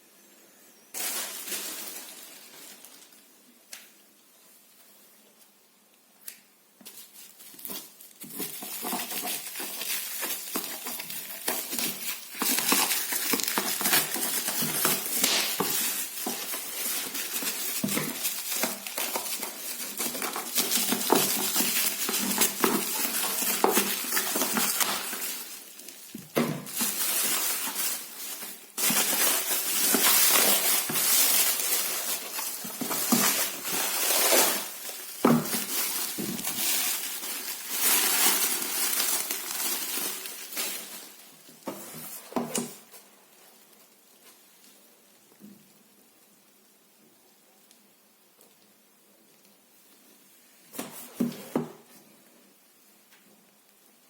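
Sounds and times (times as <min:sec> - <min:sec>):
packaging crackling and rustling: 0:00.9 - 0:03.9, 0:06.8 - 0:44.7.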